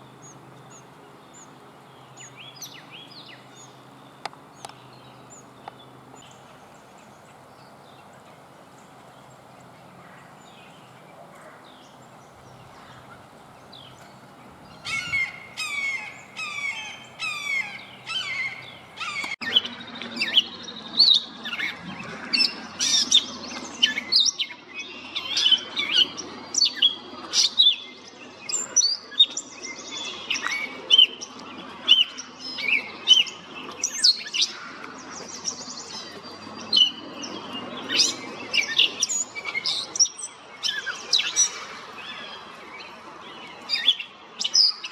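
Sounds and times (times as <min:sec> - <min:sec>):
birds chirping and whistling: 0:00.0 - 0:19.6.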